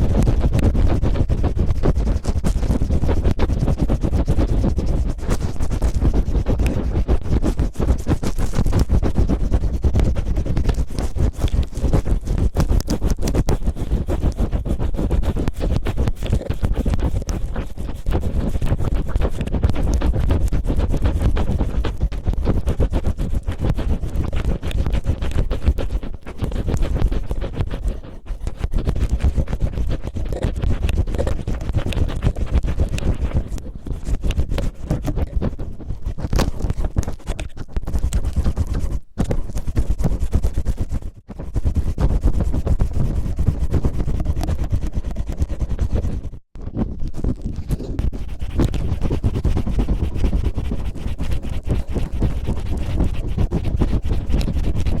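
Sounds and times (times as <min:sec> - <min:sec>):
cellophane crinkling on microphone: 0:46.6 - 0:50.4.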